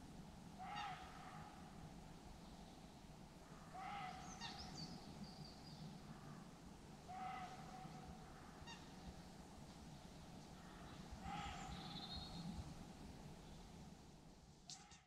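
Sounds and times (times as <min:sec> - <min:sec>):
quiet lakeside background: 0:00.0 - 0:15.0
faint bird calls: 0:00.6 - 0:01.8, 0:02.4 - 0:06.5, 0:07.1 - 0:09.4, 0:10.0 - 0:12.6.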